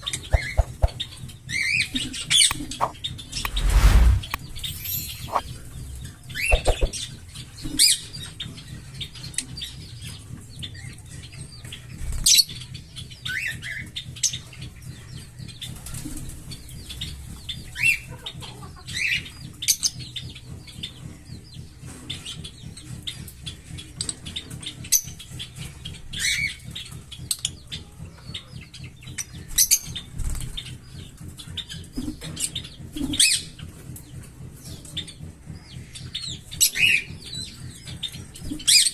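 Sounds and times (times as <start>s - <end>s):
parrots chirping and calling: 0.2s - 1.0s, 4.5s - 5.5s
wing flutters and rustling: 2.6s - 5.6s, 6.5s - 7.0s.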